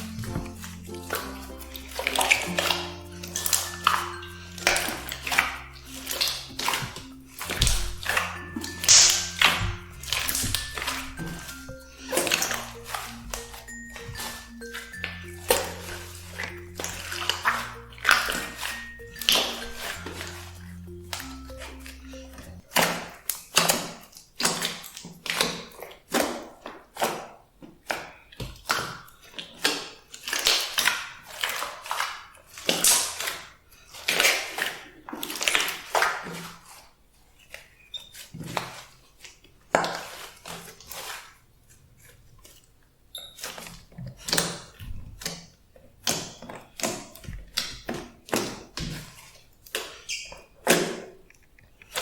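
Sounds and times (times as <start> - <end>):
slime wet pops and crackles: 0.0 - 20.4, 21.0 - 36.6.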